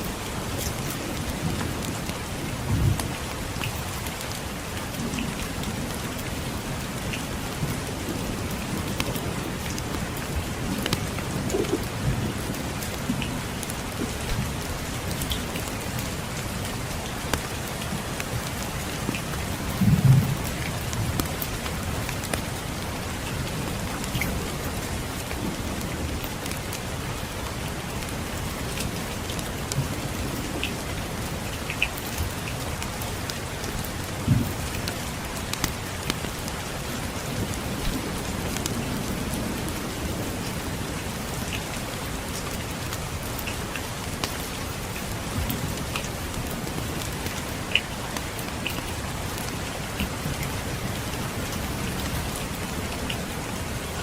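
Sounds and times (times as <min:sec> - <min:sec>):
steady rain: 0:00.0 - 0:54.0
distant thunder rumbles: 0:10.2 - 0:12.7
wood fire crackling and popping: 0:47.2 - 0:50.1.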